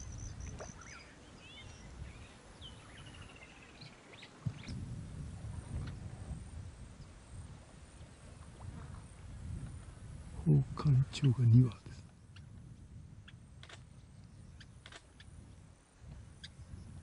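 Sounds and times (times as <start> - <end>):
birds chirping and whistling: 0.0 - 4.7.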